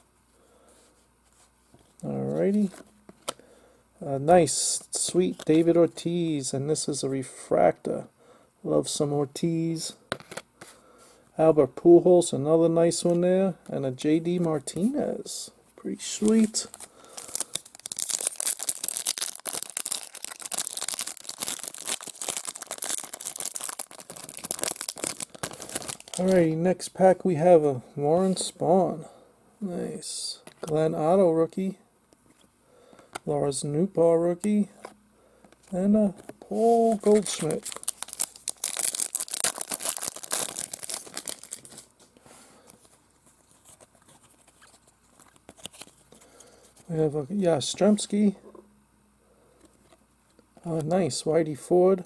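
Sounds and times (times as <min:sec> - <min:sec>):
foil wrapper crinkling and tearing: 0:16.2 - 0:26.5, 0:36.6 - 0:41.9.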